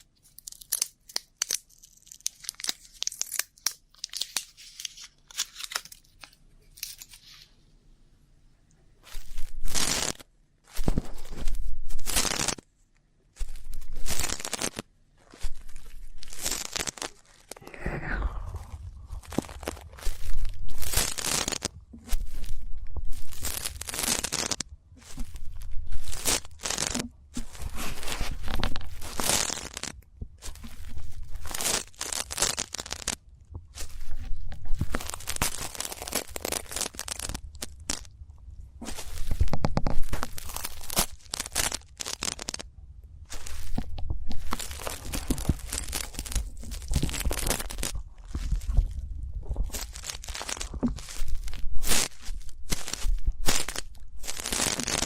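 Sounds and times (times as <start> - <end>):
scratching crackly rubbing: 9.0 - 12.6, 13.4 - 38.1, 38.8 - 42.6, 43.3 - 55.0
tool scratching on microphone: 19.2 - 29.6.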